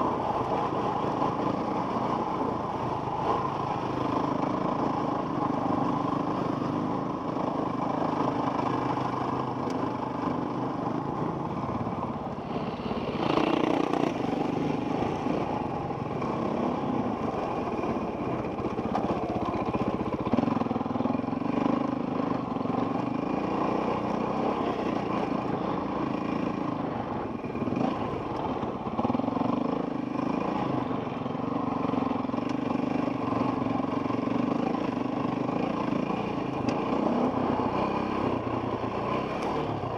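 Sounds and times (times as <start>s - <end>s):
dirt bike engine revving: 12.5s - 15.4s.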